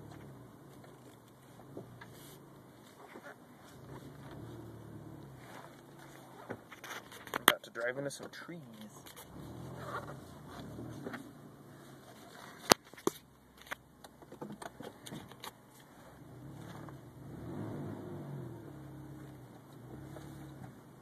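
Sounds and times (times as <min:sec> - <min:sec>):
car engine running at low revs: 0:00.0 - 0:21.0
sharp clicks and knocks: 0:12.6 - 0:15.9.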